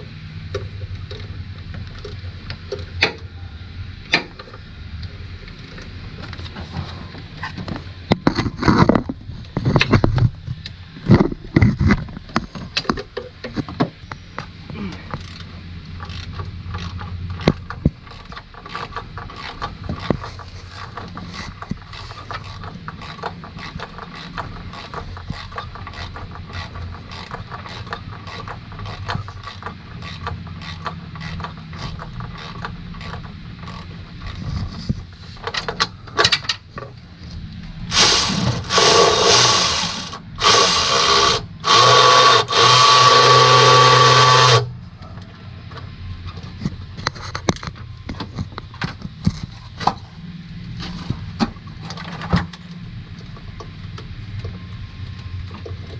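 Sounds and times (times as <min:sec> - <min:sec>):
hand ratchet clicking: 0:15.2 - 0:34.4, 0:37.9 - 0:44.7
power tool bursts: 0:37.9 - 0:44.7.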